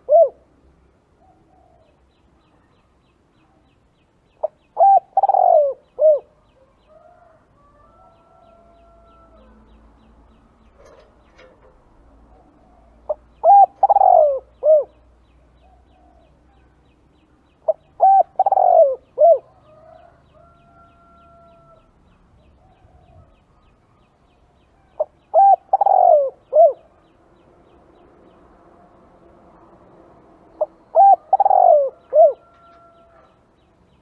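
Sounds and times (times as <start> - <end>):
dove cooing: 0.0 - 0.5, 4.4 - 6.4, 12.3 - 15.0, 17.7 - 21.8, 25.0 - 27.0, 30.6 - 33.3.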